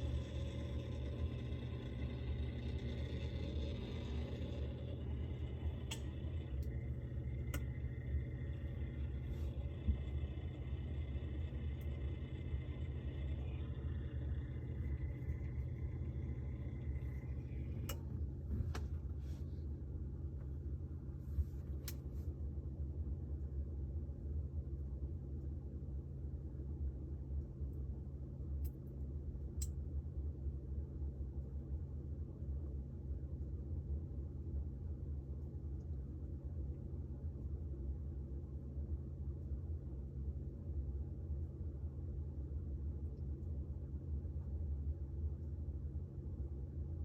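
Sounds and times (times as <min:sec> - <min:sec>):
refrigerator humming: 0:00.0 - 0:23.7.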